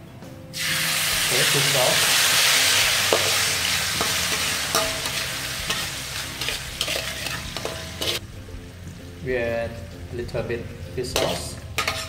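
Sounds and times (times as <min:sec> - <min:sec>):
garlic and sauce sizzling in a wok: 0:00.5 - 0:12.0
spatula scraping and tapping a pan: 0:04.0 - 0:08.2, 0:11.2 - 0:12.0.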